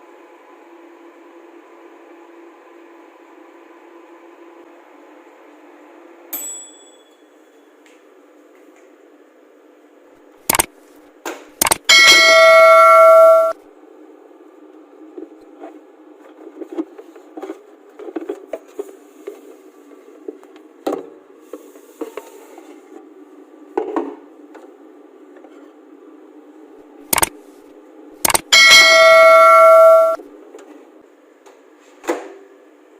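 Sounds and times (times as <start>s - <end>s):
sharp clicks: 10.5s - 10.7s, 11.6s - 11.9s, 27.1s - 27.3s, 28.2s - 28.5s
loud steady beep: 11.6s - 13.6s, 28.3s - 30.2s
microwave ding: 11.6s - 13.6s, 28.3s - 30.2s
microwave oven humming: 11.9s - 15.0s, 24.3s - 31.4s.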